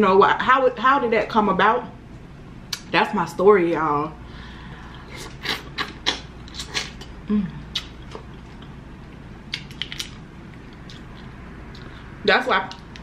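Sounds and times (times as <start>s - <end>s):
person chewing with mouth clicks: 4.9s - 12.1s
person humming briefly: 7.3s - 7.7s.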